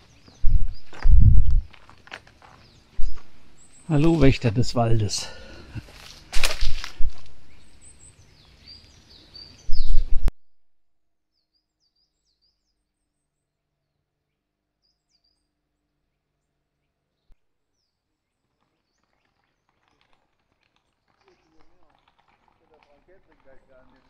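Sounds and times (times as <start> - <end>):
small birds chirping: 0.0 - 10.3, 11.3 - 24.0
loud rumbling rustling noise: 0.4 - 2.1.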